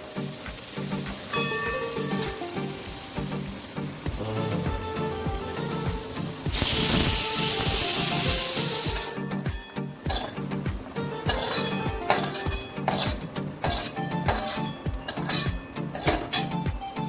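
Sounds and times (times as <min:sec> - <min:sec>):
background music with beat: 0:00.0 - 0:17.0
food sizzling in a pan: 0:00.0 - 0:17.0
utensil stirring and clinking: 0:06.4 - 0:17.0.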